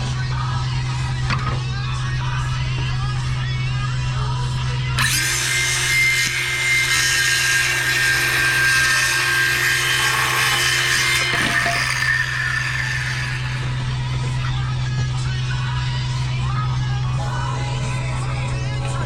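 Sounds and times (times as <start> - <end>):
power tool cutting wood: 5.0 - 15.0.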